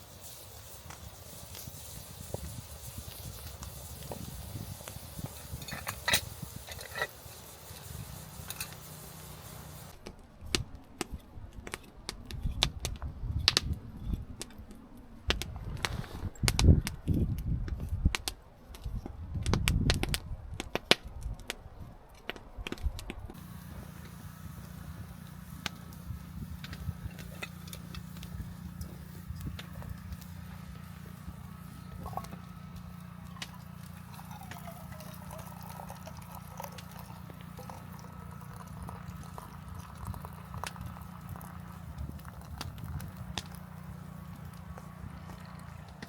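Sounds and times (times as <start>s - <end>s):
soft outdoor background: 0.0s - 46.0s
low thuds: 15.3s - 17.8s.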